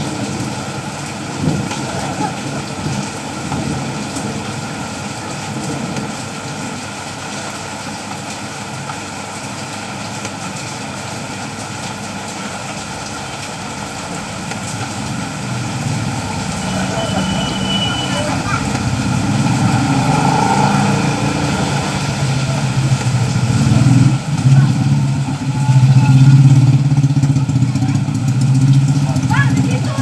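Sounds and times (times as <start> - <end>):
rain falling: 0.0 - 30.0
low rumble: 12.7 - 27.4.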